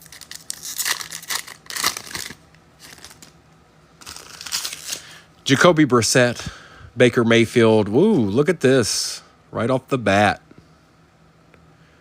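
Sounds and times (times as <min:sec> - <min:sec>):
foil wrapper tearing and crinkling: 0:00.0 - 0:03.4, 0:04.0 - 0:05.1.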